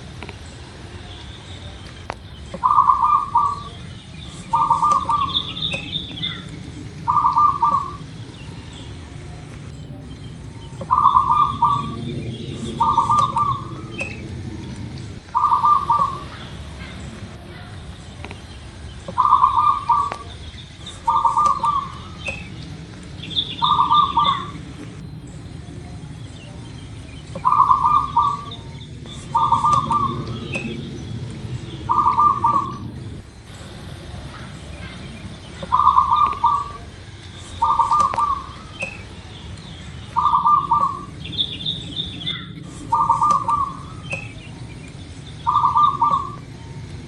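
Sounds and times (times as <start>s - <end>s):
low background rumble: 0.0s - 47.0s
small birds chirping: 0.0s - 47.0s
dove cooing: 1.6s - 47.0s.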